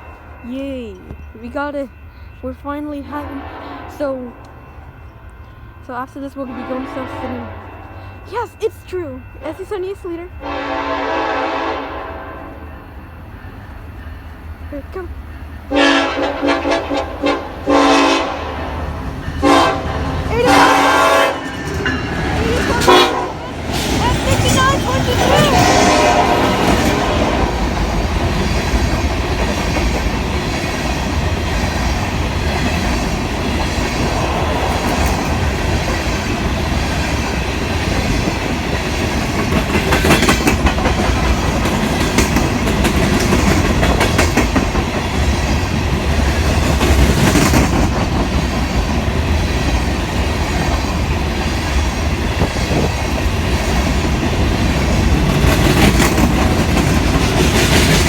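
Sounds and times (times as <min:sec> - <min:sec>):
freight train rumbling past: 0:00.0 - 0:58.0
wheels clicking over rail joints: 0:21.4 - 0:58.0.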